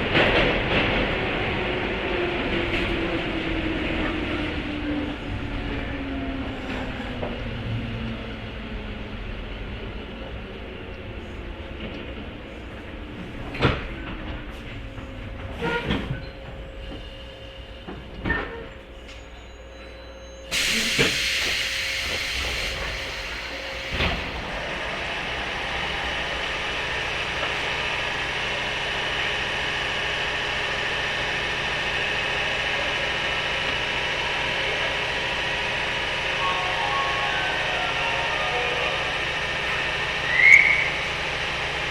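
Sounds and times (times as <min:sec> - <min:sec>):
train running rumble: 0:00.0 - 0:19.6, 0:20.5 - 0:41.9
rail-joint clacks: 0:11.8 - 0:17.2, 0:17.8 - 0:19.4.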